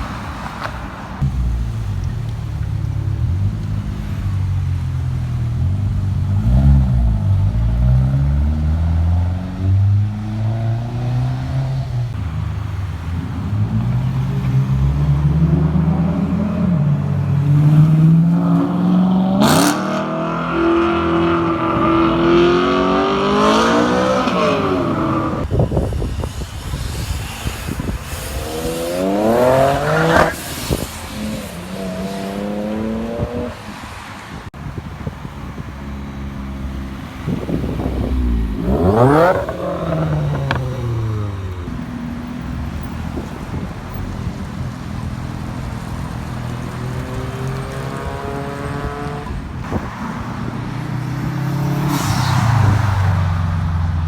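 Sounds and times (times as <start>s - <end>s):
car engines accelerating: 0.0s - 54.0s
high-pitched engine revving: 17.6s - 25.5s, 26.1s - 33.6s, 37.5s - 42.2s.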